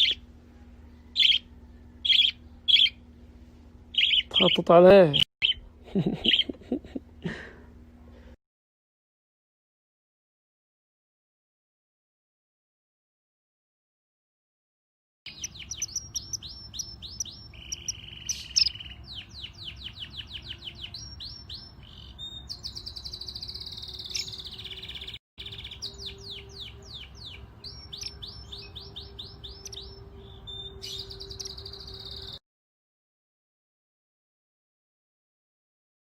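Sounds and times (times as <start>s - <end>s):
songbirds chirping: 0.0s - 6.5s, 15.3s - 32.4s
faint steady hum: 0.0s - 8.4s.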